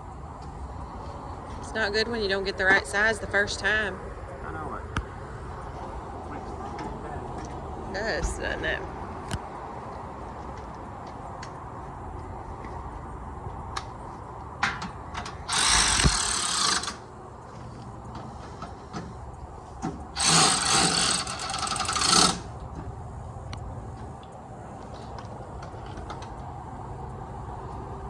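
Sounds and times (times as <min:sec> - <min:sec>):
handheld power tool running: 0:15.5 - 0:17.0, 0:20.2 - 0:22.5.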